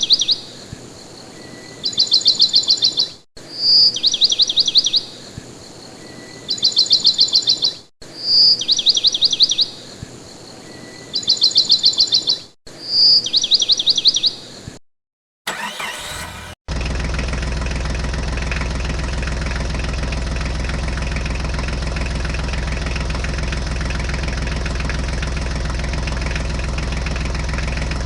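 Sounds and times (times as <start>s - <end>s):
bird whistling and chirping: 12.9s - 14.4s.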